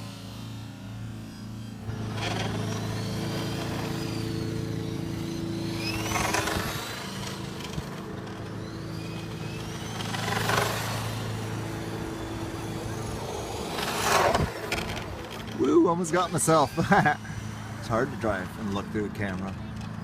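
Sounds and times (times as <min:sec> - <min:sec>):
steady low hum: 0:00.0 - 0:19.8
toy car motor whining: 0:00.0 - 0:20.0.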